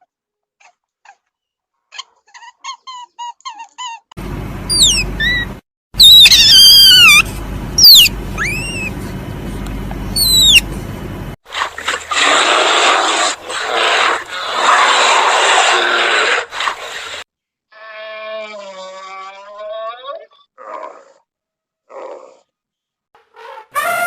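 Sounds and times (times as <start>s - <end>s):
animal squealing calls: 4.7s - 9.0s, 10.2s - 10.6s, 23.3s - 24.0s.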